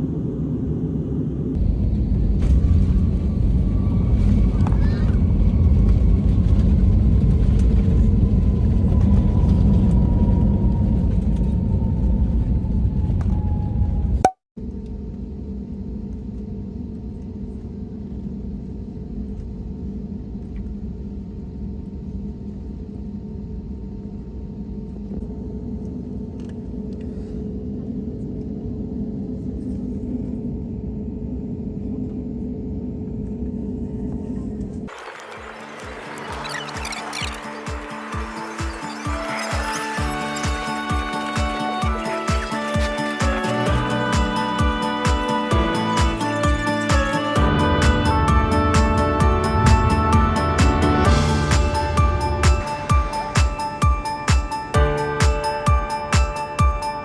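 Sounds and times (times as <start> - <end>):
vehicle rumble: 0.0 - 14.3.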